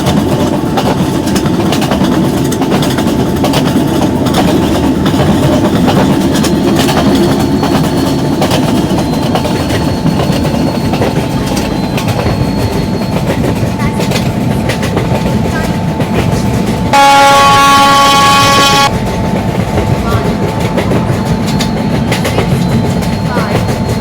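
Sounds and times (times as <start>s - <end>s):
train rumbling at speed: 0.0s - 24.0s
wheels clacking over rail joints: 0.0s - 24.0s.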